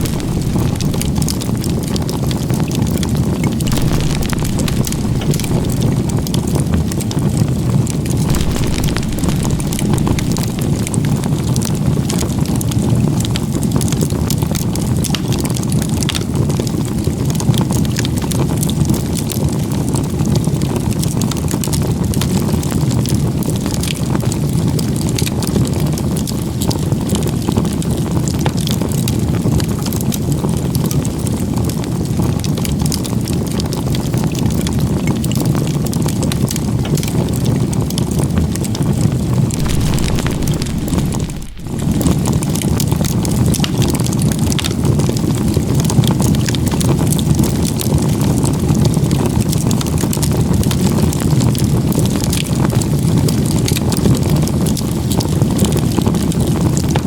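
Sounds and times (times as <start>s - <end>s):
burning wood crackling and popping: 0.0s - 12.6s, 39.5s - 45.6s
campfire rushing: 0.0s - 12.6s, 39.5s - 45.6s.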